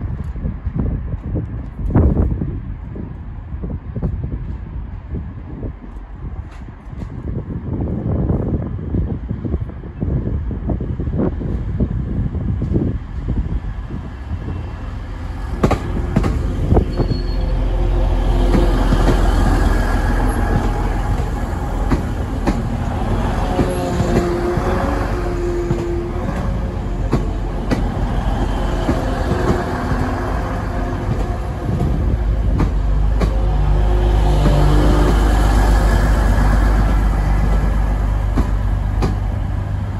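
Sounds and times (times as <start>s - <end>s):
train engine rumble: 0.0s - 39.9s
wheel squeal: 16.8s - 17.6s.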